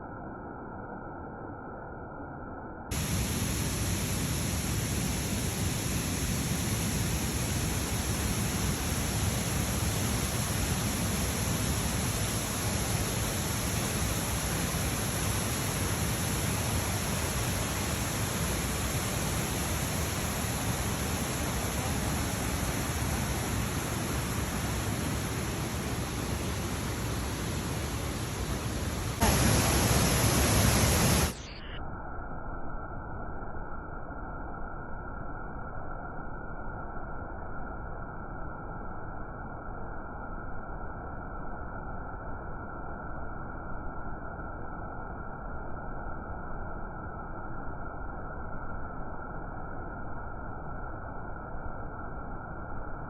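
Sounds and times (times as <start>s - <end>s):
waterfall rushing: 11.4s - 31.4s.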